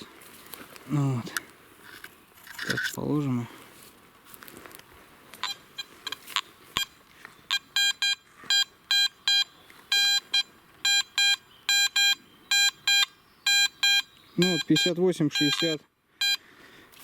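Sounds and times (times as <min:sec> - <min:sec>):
metal detector beeping: 0:05.4 - 0:16.4.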